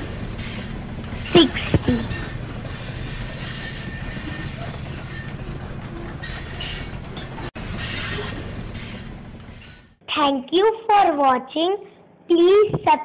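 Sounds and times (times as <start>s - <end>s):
train running along track: 0.0s - 10.0s.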